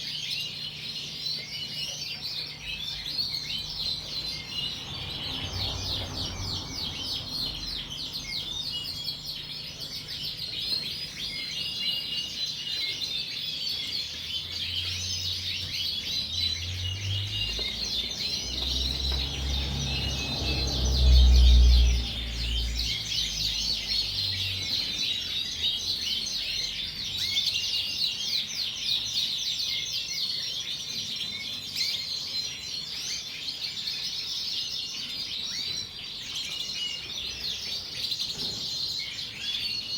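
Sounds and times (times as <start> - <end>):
canaries chirping and trilling: 0.0 - 39.9.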